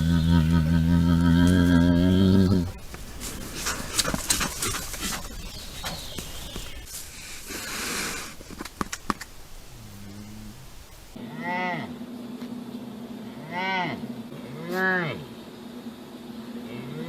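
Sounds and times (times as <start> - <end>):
bear low moan: 0.0 - 2.9
bear huffing: 0.0 - 5.2
bear pitched calls: 0.0 - 5.5.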